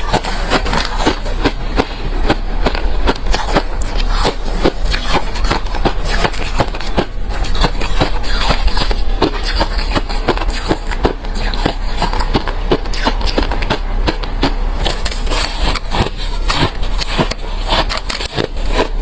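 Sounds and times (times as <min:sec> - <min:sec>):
chewing crunchy ice: 0:00.0 - 0:19.0.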